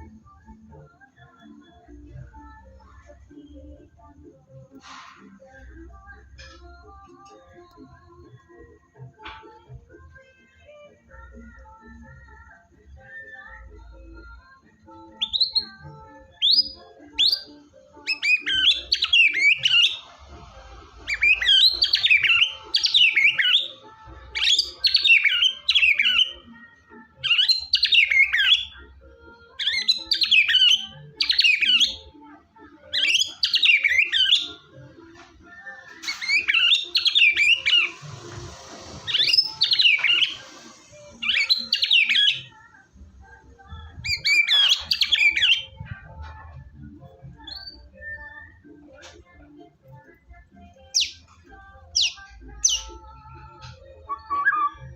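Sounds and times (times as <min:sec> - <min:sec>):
bird warbling song: 0:15.2 - 0:20.0, 0:21.1 - 0:26.4, 0:27.2 - 0:28.8, 0:29.6 - 0:32.0, 0:32.9 - 0:34.7, 0:36.0 - 0:38.1, 0:39.0 - 0:42.6, 0:43.9 - 0:46.0, 0:47.4 - 0:48.6, 0:50.8 - 0:53.0
rising bird whistles: 0:54.0 - 0:54.9.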